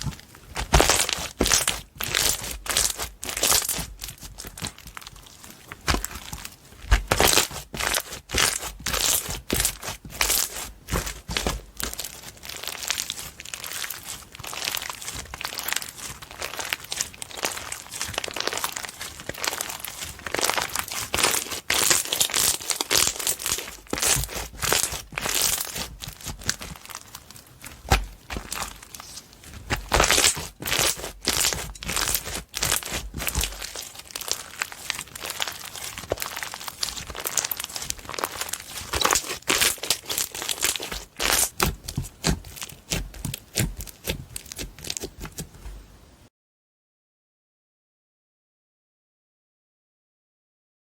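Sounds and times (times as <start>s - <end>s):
slime squelching: 0.0s - 46.0s
slime clicking and popping: 29.8s - 45.4s.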